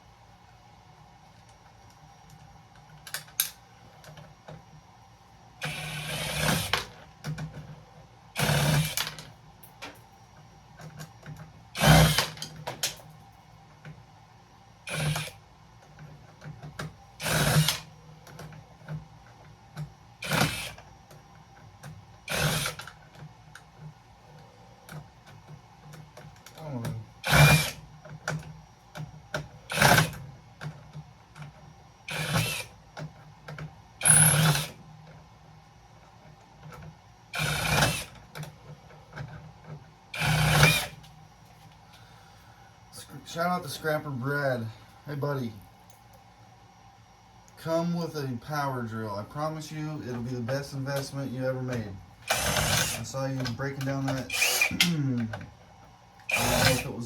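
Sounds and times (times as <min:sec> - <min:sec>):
cordless drill backing out screws: 0:40.2 - 0:41.0, 0:51.7 - 0:55.0, 0:56.3 - 0:57.0.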